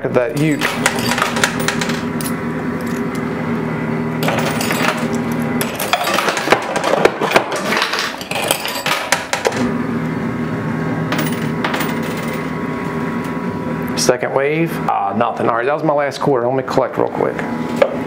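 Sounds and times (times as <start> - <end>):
machine humming: 0.0 - 18.0
coins clinking in coin pusher: 0.4 - 3.2, 4.2 - 9.6, 11.1 - 12.5.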